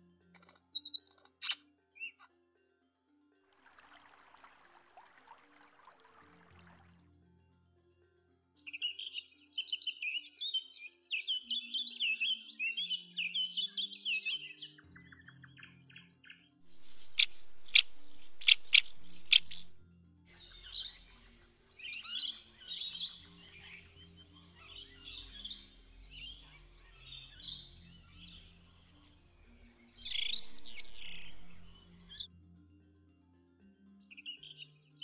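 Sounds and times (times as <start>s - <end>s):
soft background music: 0.0s - 35.0s
loud bird song: 0.4s - 2.3s, 8.6s - 32.3s, 34.0s - 35.0s
birds chirping and chattering: 16.7s - 19.8s, 20.4s - 32.2s
sharp strident bird calls: 16.7s - 19.8s, 30.0s - 32.2s.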